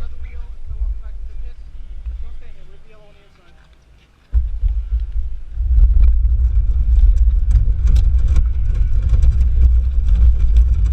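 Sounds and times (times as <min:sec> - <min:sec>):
kart engine rumbling: 0:04.4 - 0:10.9.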